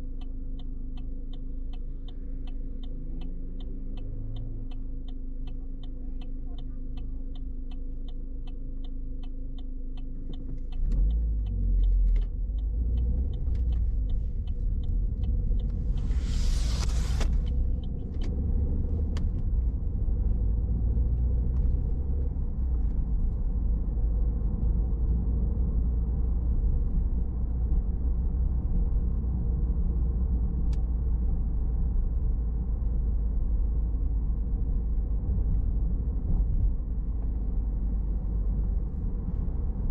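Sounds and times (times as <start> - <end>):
car engine and road rumble: 0.0 - 39.9
turn signal ticking: 0.0 - 39.9
brief hiss: 16.0 - 17.5.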